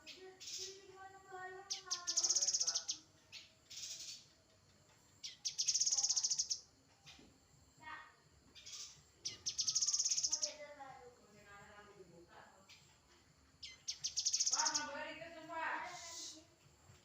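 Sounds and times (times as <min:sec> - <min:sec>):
high buzzy bird trill: 0:01.6 - 0:04.2, 0:05.2 - 0:06.7, 0:08.6 - 0:10.6, 0:13.6 - 0:15.0.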